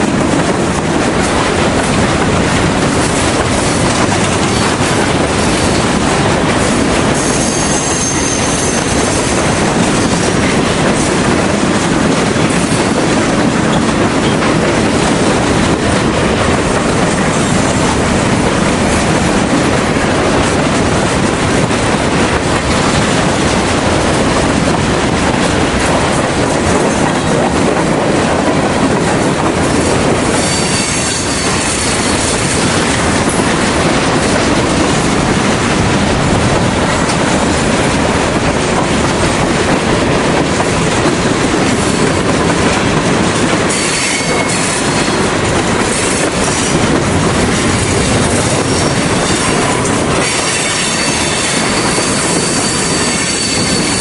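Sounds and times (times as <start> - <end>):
clickety-clack over rail joints: 0.0 - 54.0
freight train wheels rumbling on rail: 0.0 - 54.0
high wheel squeals: 7.2 - 9.1, 30.4 - 32.3, 50.3 - 54.0.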